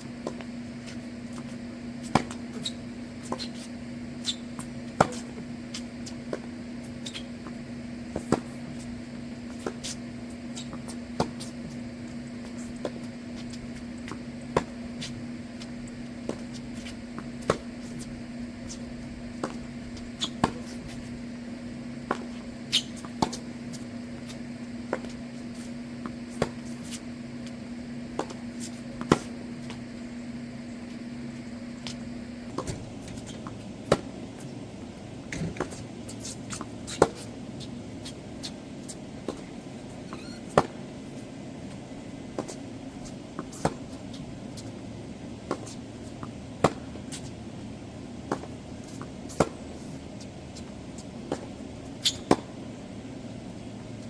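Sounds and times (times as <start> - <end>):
steady low hum: 0.0 - 54.0
tennis balls struck by rackets: 4.2 - 6.5, 22.0 - 29.8, 31.8 - 34.6, 39.2 - 41.0, 45.4 - 47.3, 50.5 - 52.7.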